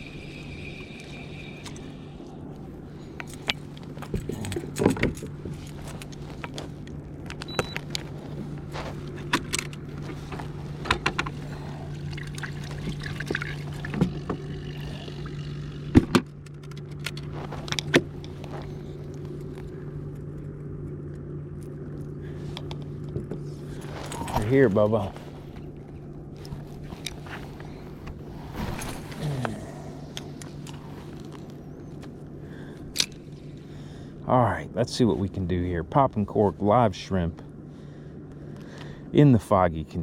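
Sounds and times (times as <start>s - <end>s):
steady low hum: 0.0s - 40.0s
fishing gear clicking and clinking: 3.1s - 10.1s.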